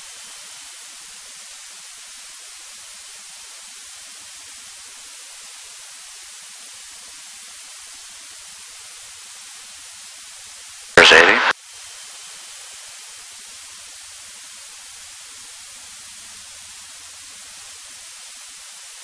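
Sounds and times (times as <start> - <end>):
intercom hiss: 11.0 - 11.6.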